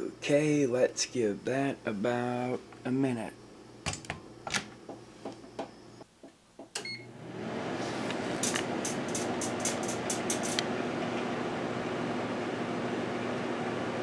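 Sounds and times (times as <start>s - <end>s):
microwave oven humming: 6.7s - 14.0s
microwave beep: 6.8s - 7.2s.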